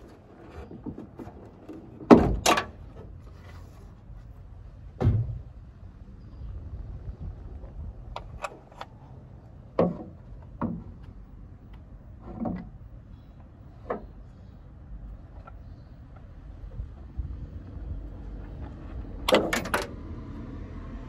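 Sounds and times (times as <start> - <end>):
steady low rumble: 2.7 - 21.0
sharp clicks and knocks: 18.6 - 20.0.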